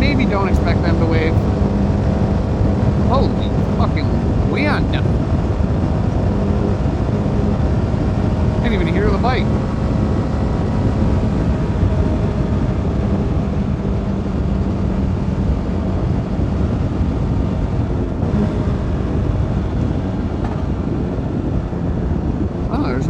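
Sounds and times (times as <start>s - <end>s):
motorcycle engine steady note: 0.0s - 23.0s
wind rush on microphone: 0.0s - 23.0s.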